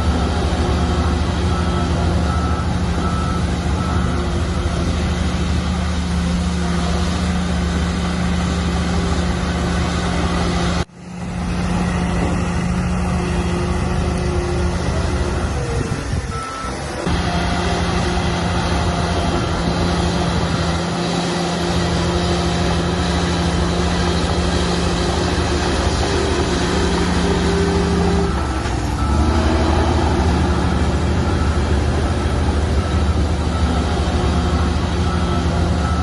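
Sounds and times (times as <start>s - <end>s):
heavy diesel machinery rumbling: 0.0s - 36.0s
reversing alarm beeps: 0.2s - 4.9s, 27.0s - 36.0s.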